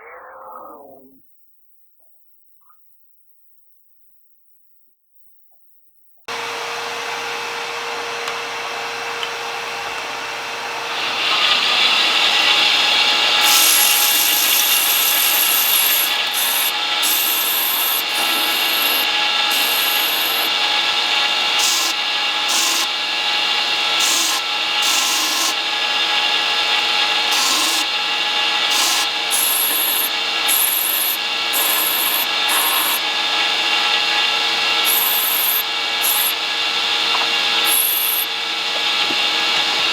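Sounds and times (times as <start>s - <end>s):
power grinder grinding steel: 10.7s - 39.9s
grinding hiss: 10.9s - 39.9s.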